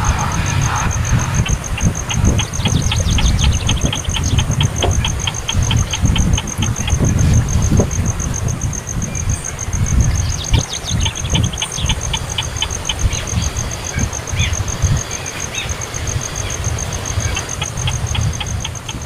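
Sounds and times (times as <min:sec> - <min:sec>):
loud low rumble: 0:00.0 - 0:08.7
baby bird begging chirps: 0:01.4 - 0:07.4.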